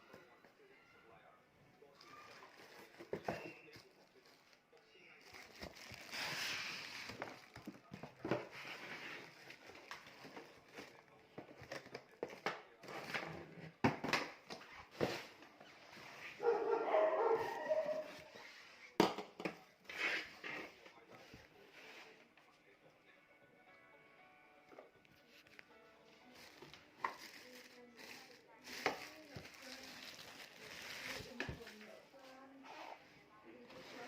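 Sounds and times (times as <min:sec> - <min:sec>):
packaging rustling: 0:05.2 - 0:07.9, 0:26.4 - 0:31.9.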